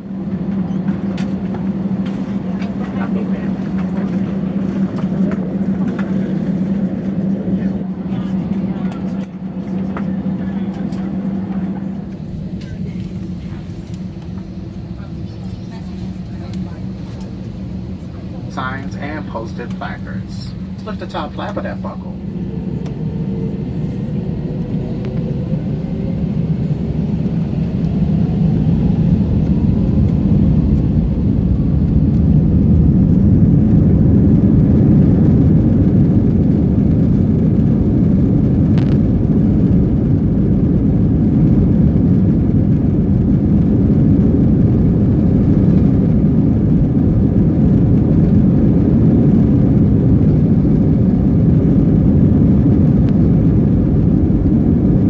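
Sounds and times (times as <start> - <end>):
loud steady takeoff rumble: 0.0 - 55.0
jet engines spooling up: 0.2 - 55.0.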